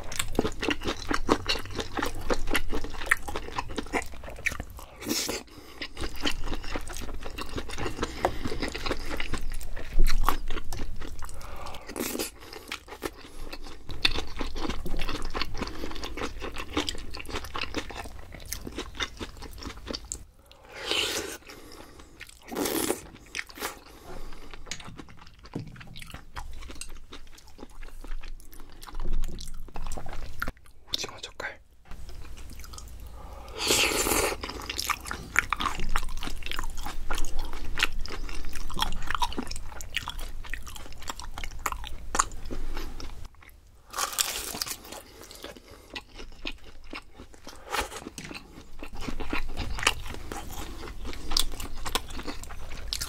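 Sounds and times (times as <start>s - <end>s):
chewing and biting food: 0.0s - 30.7s, 32.1s - 33.0s, 33.6s - 53.0s.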